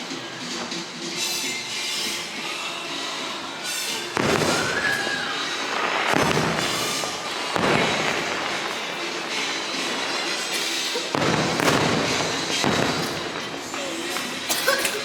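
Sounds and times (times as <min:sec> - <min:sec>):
fireworks bursting and crackling: 0:00.0 - 0:15.0
orchestral music: 0:03.2 - 0:15.0.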